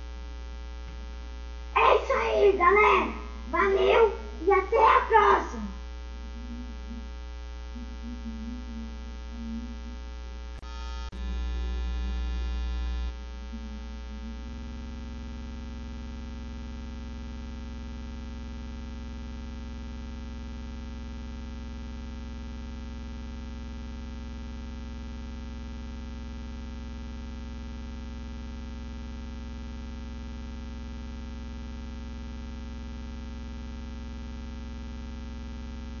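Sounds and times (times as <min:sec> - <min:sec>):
electrical mains hum: 0:00.0 - 0:19.4.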